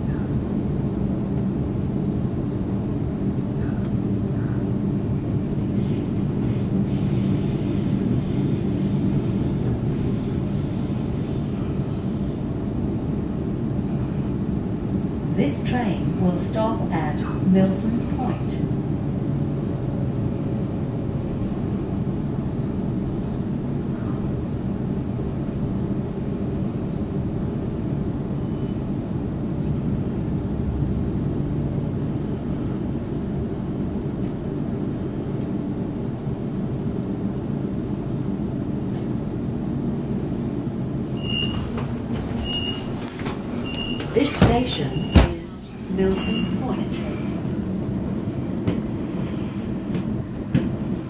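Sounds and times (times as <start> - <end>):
train cabin rumble: 0.0 - 51.0
short high beeps: 41.2 - 41.6.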